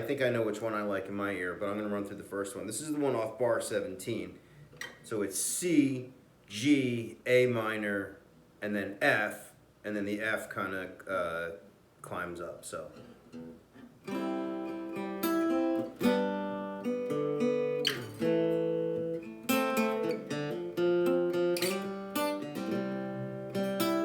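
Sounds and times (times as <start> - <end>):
guitar strumming chords: 13.0 - 24.0.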